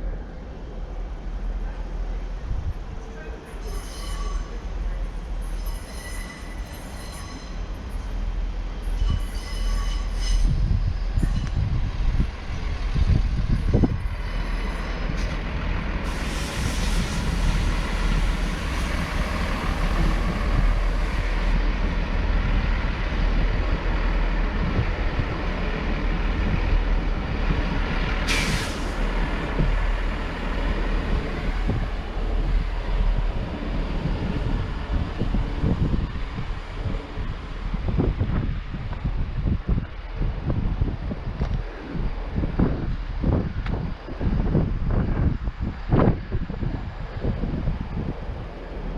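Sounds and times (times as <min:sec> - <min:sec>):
diesel train engine rumble: 0:00.0 - 0:48.9
air brake hiss: 0:16.0 - 0:17.8, 0:28.2 - 0:29.1.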